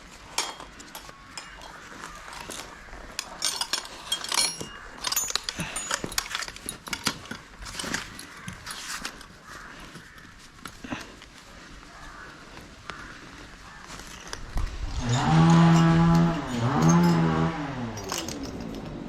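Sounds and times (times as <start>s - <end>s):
metal pieces clinking: 0.2s - 9.2s, 14.2s - 19.0s.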